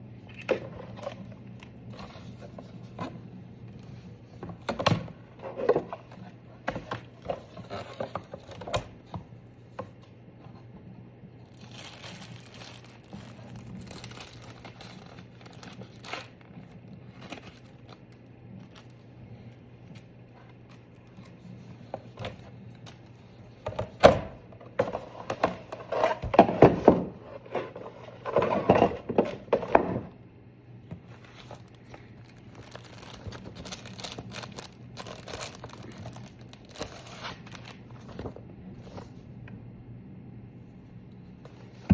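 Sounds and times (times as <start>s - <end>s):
steady low hum: 0.0s - 41.9s
objects knocking and clattering: 23.6s - 30.2s.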